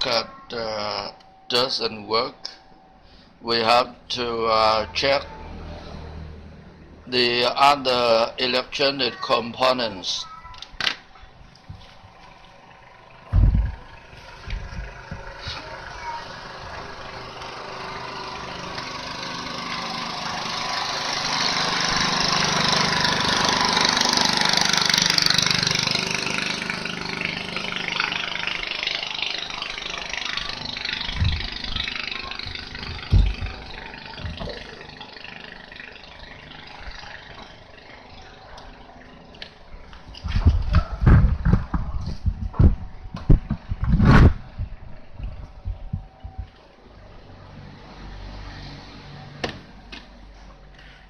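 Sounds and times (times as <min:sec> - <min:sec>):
motor vehicle passing: 0:03.0 - 0:08.8, 0:11.1 - 0:51.0
dull knocks: 0:13.3 - 0:13.8, 0:32.9 - 0:33.6.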